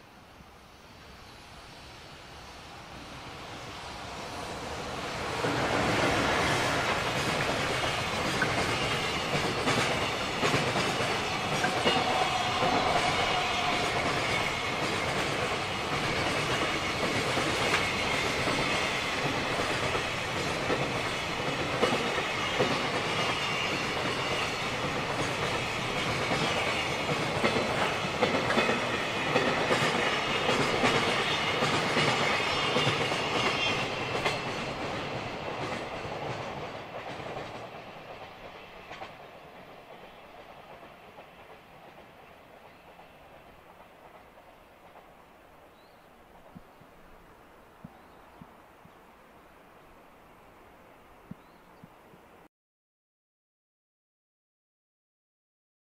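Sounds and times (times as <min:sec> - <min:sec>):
freight train rumbling past: 0:00.0 - 0:48.4
wheels clacking over rail joints: 0:05.2 - 0:46.7.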